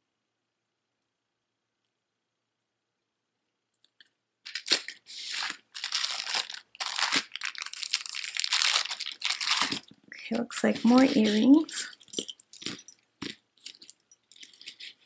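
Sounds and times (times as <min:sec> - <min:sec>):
plastic bag crinkling: 0:04.5 - 0:15.0.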